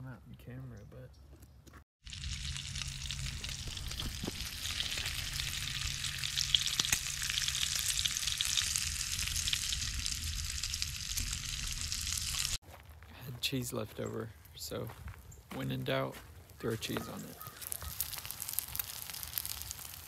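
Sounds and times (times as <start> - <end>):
food sizzling in a hot pan: 2.0 - 12.6, 17.4 - 20.0
low hum: 2.1 - 12.6.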